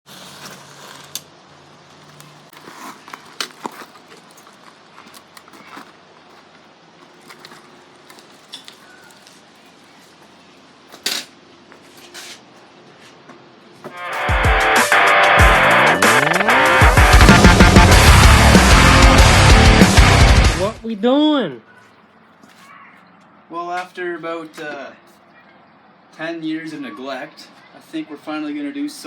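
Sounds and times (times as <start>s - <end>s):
loud music: 13.9s - 20.8s.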